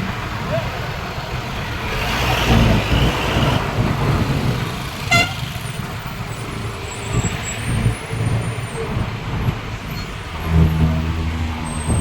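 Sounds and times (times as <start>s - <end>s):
road traffic rumbling: 0.0s - 12.0s
car horn toot: 5.0s - 5.5s.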